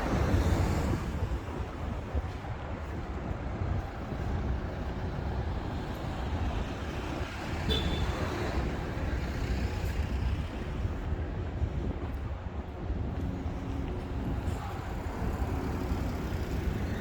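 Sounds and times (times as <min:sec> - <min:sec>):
passing motor vehicles rumble: 0:00.0 - 0:17.0.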